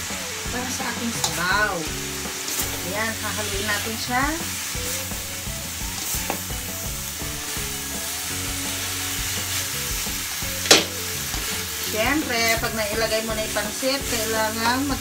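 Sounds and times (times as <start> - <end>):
noodles sizzling in a wok: 0.0 - 15.0
spatula striking wok: 5.9 - 6.7, 10.6 - 11.7.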